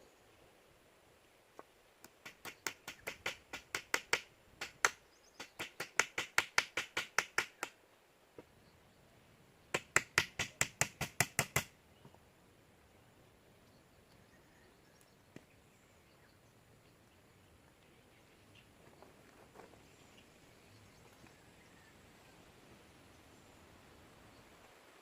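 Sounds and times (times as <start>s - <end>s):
fast sharp taps: 2.0s - 7.8s.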